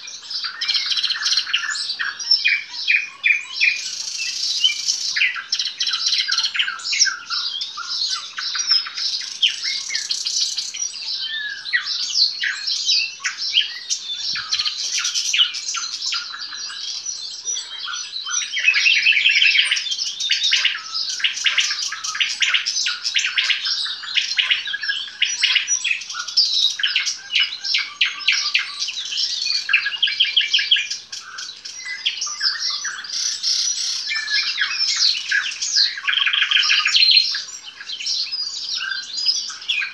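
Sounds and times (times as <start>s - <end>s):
nightingale singing: 0.0s - 39.9s.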